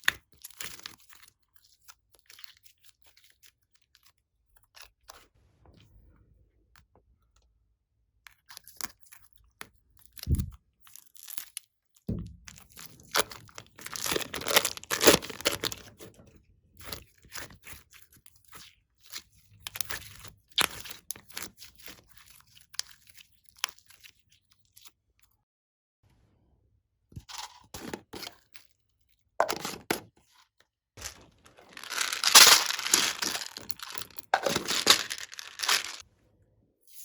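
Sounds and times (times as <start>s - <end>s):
slime crackling and popping: 13.2s - 15.8s, 31.0s - 36.0s.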